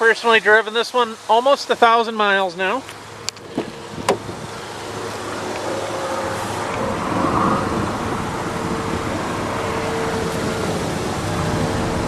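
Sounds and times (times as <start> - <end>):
car running hum: 3.4 - 5.6.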